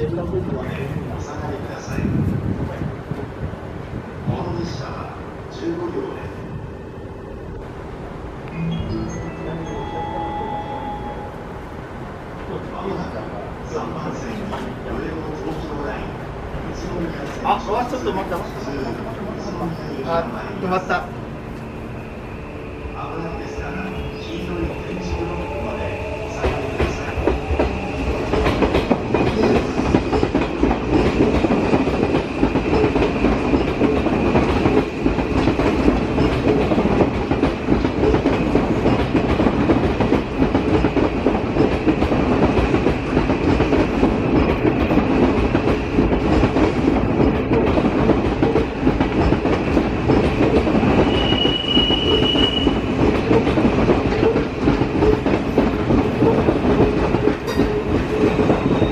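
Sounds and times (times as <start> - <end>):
rumble of rail cars: 0.0 - 58.9
brief higher tone: 8.5 - 11.6.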